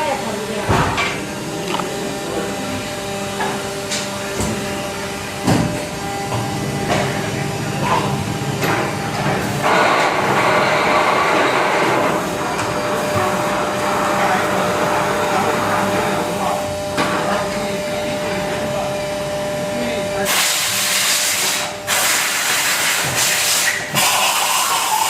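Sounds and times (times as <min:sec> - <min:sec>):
machine running with hum: 0:00.0 - 0:20.7.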